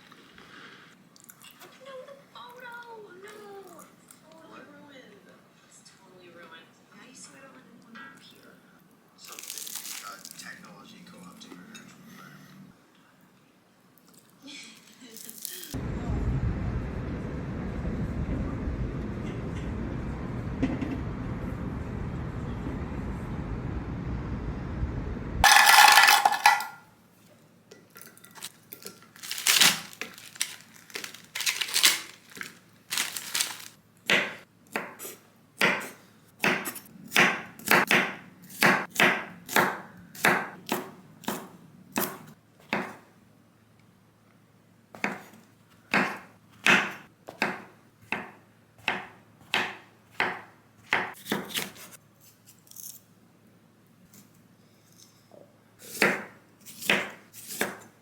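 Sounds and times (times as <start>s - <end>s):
loud clatter: 25.4s - 26.8s
knife chopping on cutting board: 34.1s - 43.1s, 45.0s - 51.9s, 55.9s - 57.9s.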